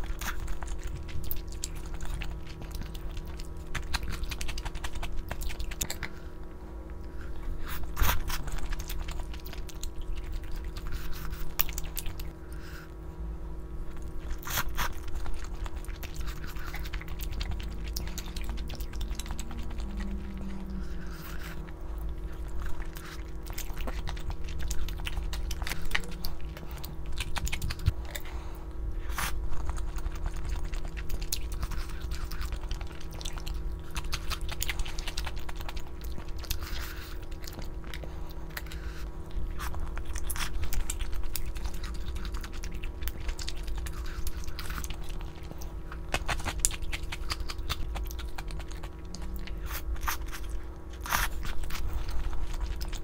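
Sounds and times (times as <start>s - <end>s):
person chewing food: 0.0s - 13.0s, 13.7s - 53.0s
low hum: 0.0s - 53.0s.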